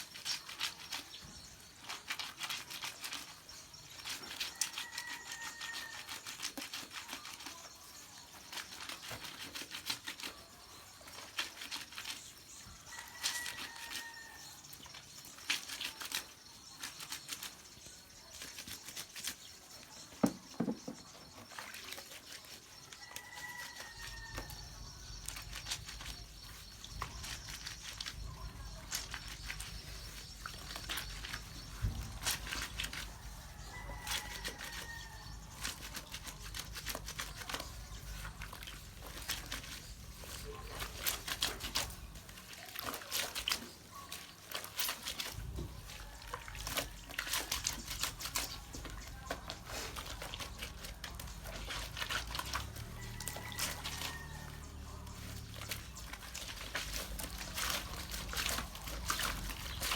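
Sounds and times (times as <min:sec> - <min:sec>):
wet fabric scrubbed by hand: 0:00.0 - 0:59.9
water splashing: 0:18.4 - 0:59.9.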